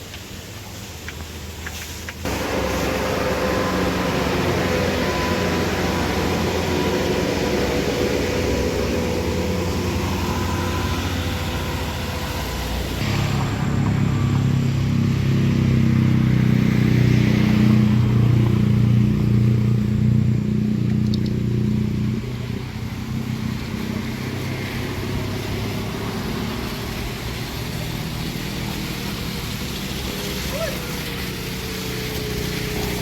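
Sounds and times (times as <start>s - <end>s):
steady road noise: 0.0s - 33.0s
vehicle engine running: 2.2s - 33.0s.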